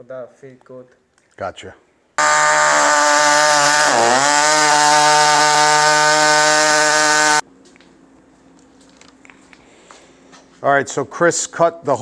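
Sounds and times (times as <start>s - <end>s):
electric power tool cutting: 2.2s - 7.4s.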